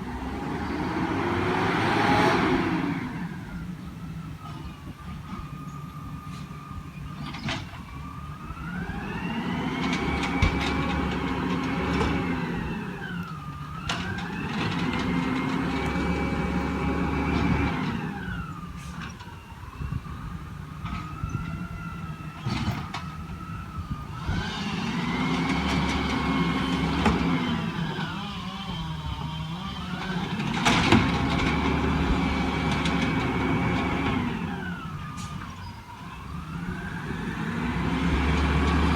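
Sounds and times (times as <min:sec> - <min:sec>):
diesel engine revving: 0:00.0 - 0:04.6, 0:08.4 - 0:19.1, 0:22.1 - 0:38.9
hydraulic packer: 0:08.9 - 0:19.4, 0:22.4 - 0:35.7.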